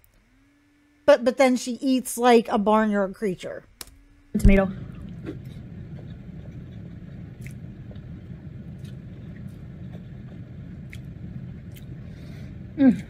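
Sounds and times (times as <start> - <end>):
steady low rumble: 2.6 - 13.0.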